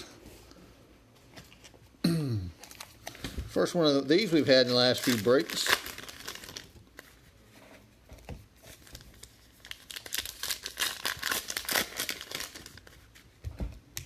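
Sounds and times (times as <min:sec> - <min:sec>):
foil wrappers crinkling and tearing: 0:02.6 - 0:07.2, 0:08.6 - 0:13.3.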